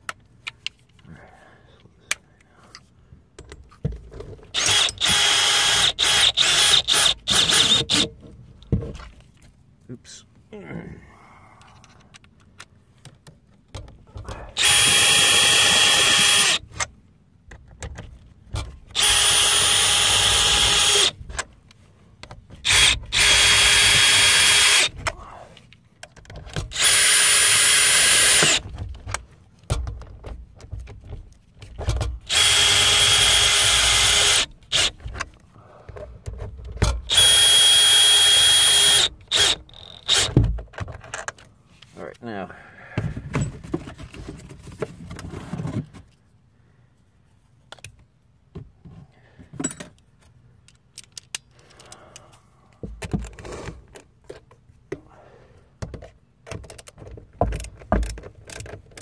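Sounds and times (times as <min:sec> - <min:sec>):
power drill running: 0:04.6 - 0:08.1, 0:14.6 - 0:16.6, 0:19.0 - 0:21.2, 0:22.6 - 0:24.9, 0:26.7 - 0:28.6, 0:32.3 - 0:34.9, 0:37.1 - 0:40.3.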